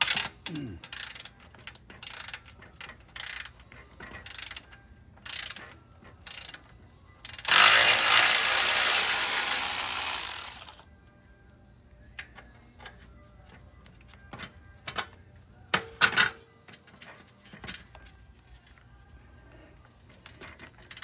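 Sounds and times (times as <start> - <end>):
ratchet wrench clicking: 0.0 - 10.8, 20.2 - 21.0.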